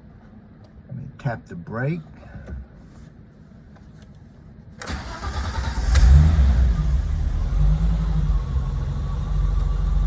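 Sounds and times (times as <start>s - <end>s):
starter motor cranking: 4.8s - 6.1s
car engine idling: 4.9s - 10.0s.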